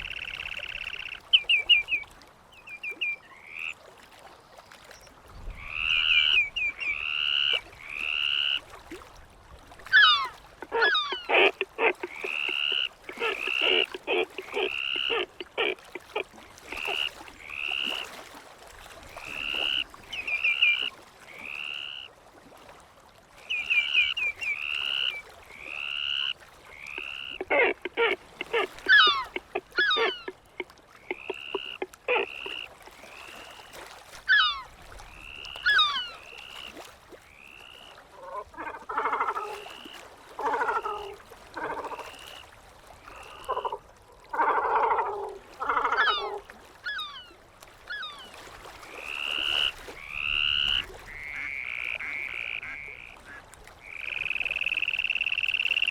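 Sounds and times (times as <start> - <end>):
gulls calling: 9.8 - 18.1, 23.5 - 36.7, 45.6 - 48.4.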